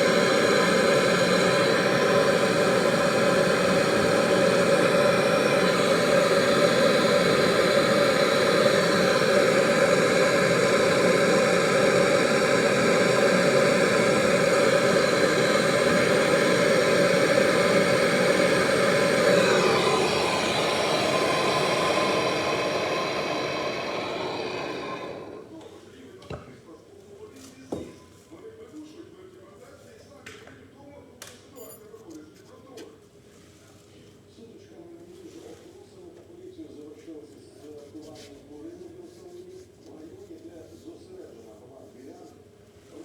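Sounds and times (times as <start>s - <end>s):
motor-driven machine whirring: 0.0s - 25.6s.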